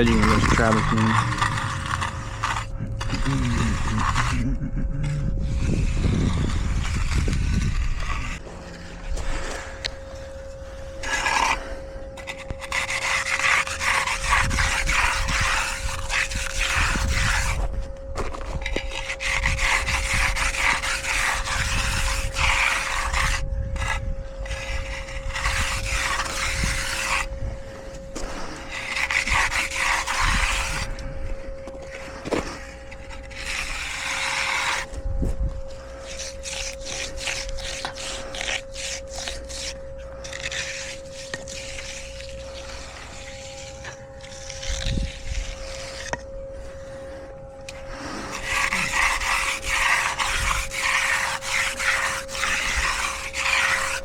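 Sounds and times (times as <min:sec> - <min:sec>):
hand edger scraping wet concrete: 0:00.0 - 0:35.0, 0:35.7 - 0:47.0, 0:47.7 - 0:54.0
faint steady hum: 0:00.0 - 0:54.0.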